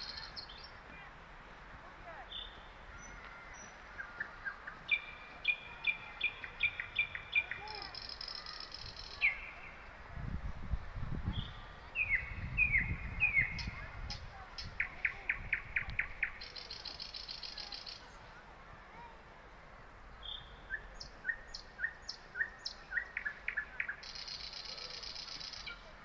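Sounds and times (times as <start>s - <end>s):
birds chirping and singing: 0.0s - 0.8s, 2.3s - 9.8s, 11.3s - 18.2s, 20.2s - 25.9s
buzzy bird trill: 4.2s - 9.6s, 14.6s - 18.1s, 22.6s - 25.8s.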